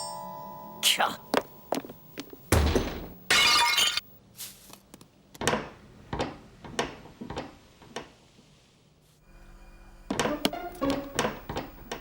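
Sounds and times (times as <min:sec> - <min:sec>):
glass shattering: 0:03.3 - 0:04.1.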